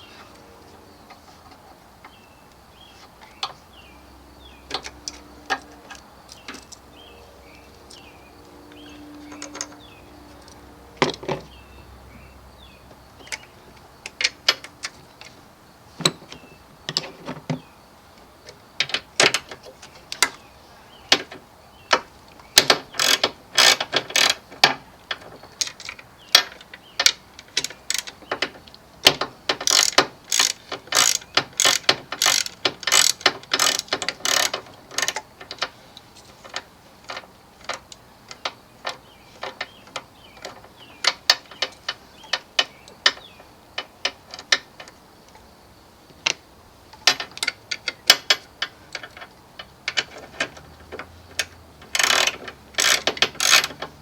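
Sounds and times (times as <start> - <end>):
ratchet wrench clicking: 22.6 - 24.4, 29.5 - 35.2, 51.4 - 53.9.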